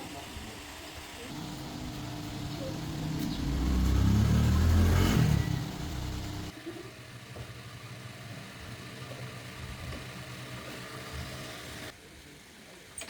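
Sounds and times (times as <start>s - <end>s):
small motorbike engine revving: 1.3s - 6.6s.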